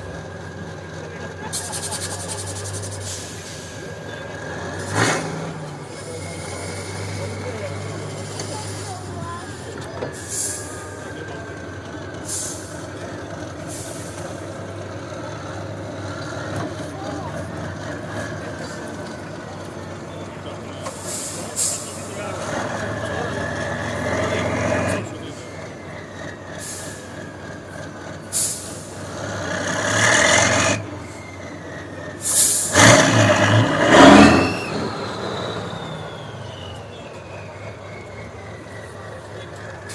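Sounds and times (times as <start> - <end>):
truck engine running: 0.0 - 39.9
short hisses: 20.9 - 22.0, 32.2 - 32.8.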